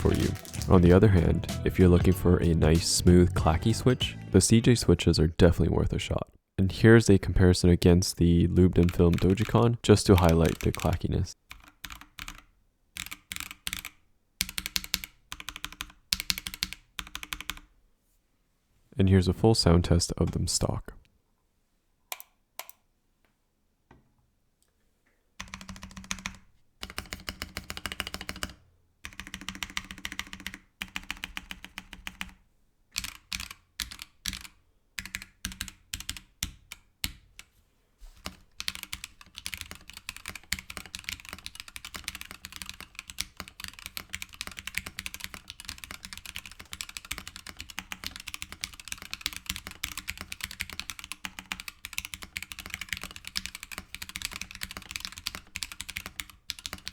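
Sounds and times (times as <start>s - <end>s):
mechanical keyboard typing: 0.0s - 3.9s, 8.8s - 17.7s, 25.4s - 32.4s, 33.0s - 37.2s, 38.2s - 56.9s.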